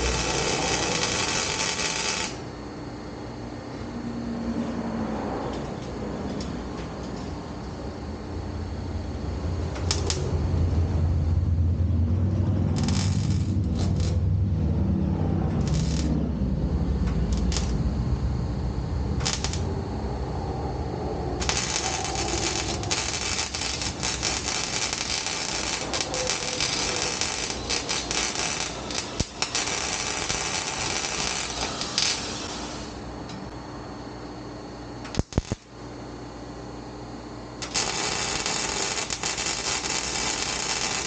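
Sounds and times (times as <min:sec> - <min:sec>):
welding arc crackling: 0:00.0 - 0:02.5, 0:09.5 - 0:20.3, 0:21.3 - 0:33.0, 0:35.0 - 0:35.7, 0:37.6 - 0:41.0
low rumble: 0:08.4 - 0:32.2.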